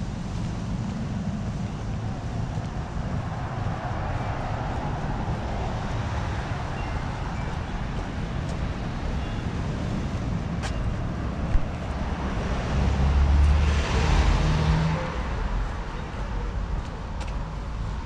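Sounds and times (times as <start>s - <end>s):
street traffic rumbling: 0.0s - 18.0s
vehicle passing close by: 11.8s - 15.9s.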